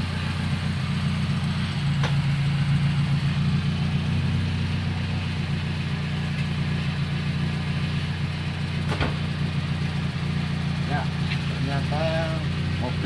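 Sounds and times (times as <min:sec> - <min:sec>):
car engine idling: 0:00.0 - 0:13.0
car door shutting: 0:08.8 - 0:09.4.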